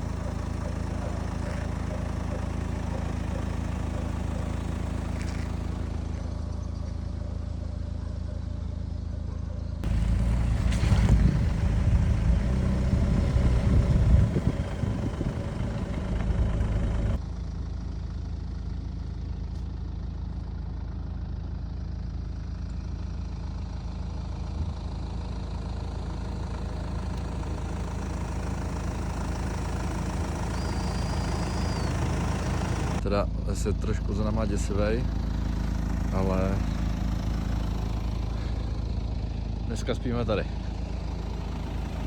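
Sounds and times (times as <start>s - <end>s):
engine running uneven: 0.0s - 7.6s, 9.8s - 17.2s, 25.4s - 33.0s, 34.6s - 42.0s
engine idling: 0.0s - 42.0s.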